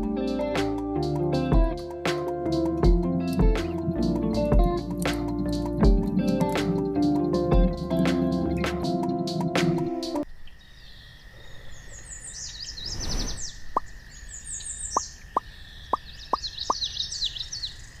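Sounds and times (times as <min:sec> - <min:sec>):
music: 0:00.0 - 0:10.2
birds chirping: 0:05.6 - 0:18.0.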